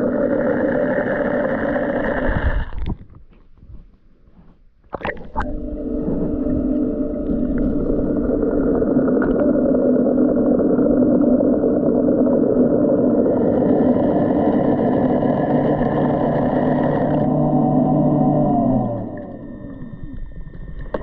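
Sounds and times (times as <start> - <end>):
higher whine: 0.0 - 2.8, 5.1 - 21.0
pool cleaner motor humming: 5.4 - 20.3.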